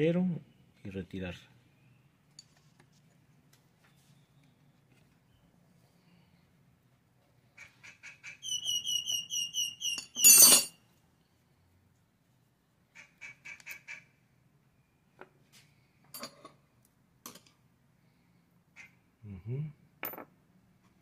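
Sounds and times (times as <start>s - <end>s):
bird squawk: 7.6s - 10.0s, 18.8s - 19.0s
bird chattering and chirping: 7.6s - 10.2s.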